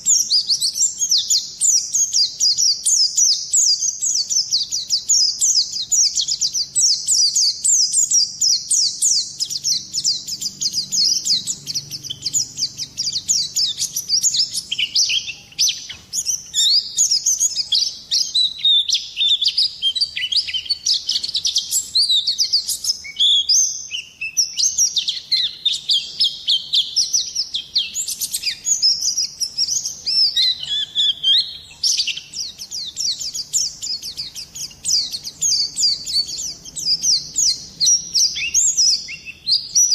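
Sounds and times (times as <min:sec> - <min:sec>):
bird high-pitched twittering song: 0:00.0 - 0:39.9.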